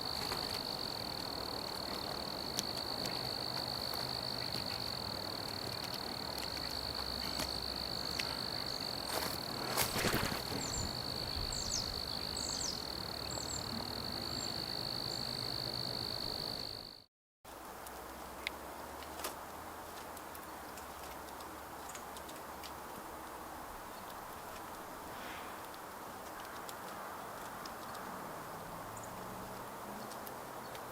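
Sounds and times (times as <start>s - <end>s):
bird chirps: 10.5s - 13.7s.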